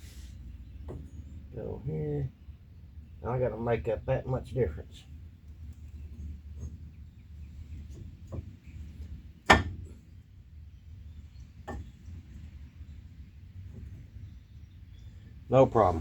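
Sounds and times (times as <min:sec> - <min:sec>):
low steady rumble: 0:00.0 - 0:16.0
knocks on steel frame: 0:09.4 - 0:10.0.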